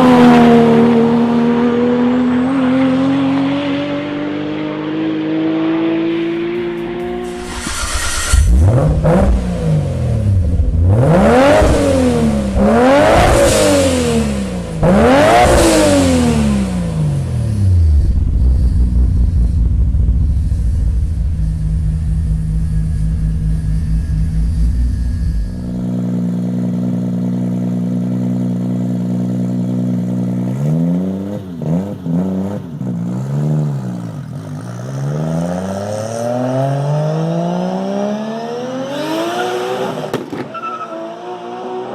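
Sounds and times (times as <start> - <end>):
car engine revving: 0.0 - 41.9
engine idling and blipped: 6.7 - 30.6.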